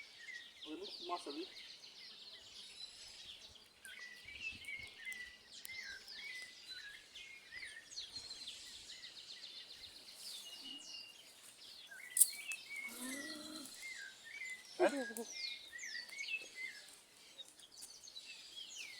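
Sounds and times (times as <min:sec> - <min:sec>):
wild birds chirping and trilling: 0:00.0 - 0:18.9.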